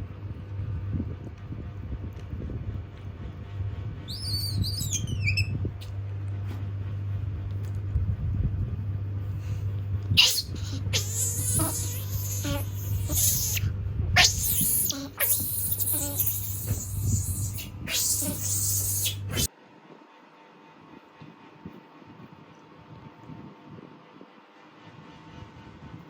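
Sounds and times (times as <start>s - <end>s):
steady low hum: 0.0s - 26.0s
monkey squeaky call: 4.1s - 5.5s, 10.2s - 19.5s
monkey scratchy squeals: 4.1s - 5.6s, 10.2s - 19.5s.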